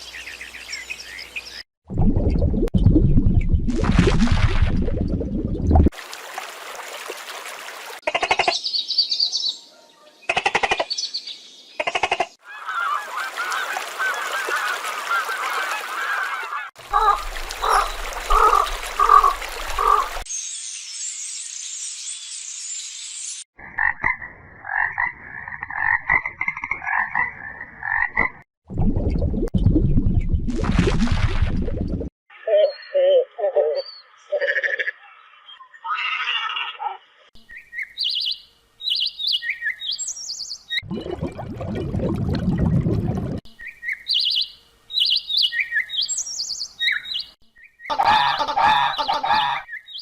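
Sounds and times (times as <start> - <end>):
honking or croaking calls: 11.8 - 20.2, 47.9 - 49.7
high-pitched animal calls: 32.3 - 37.0.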